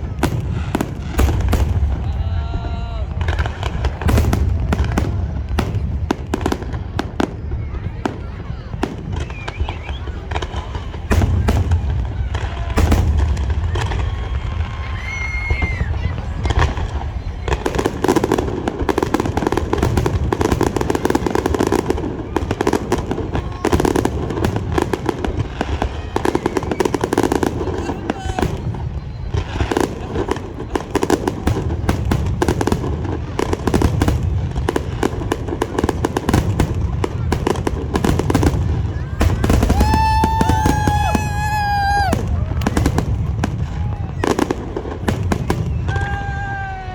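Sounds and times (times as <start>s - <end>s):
fireworks bangs and crackles: 0.0s - 46.9s
high whistle: 9.2s - 10.2s.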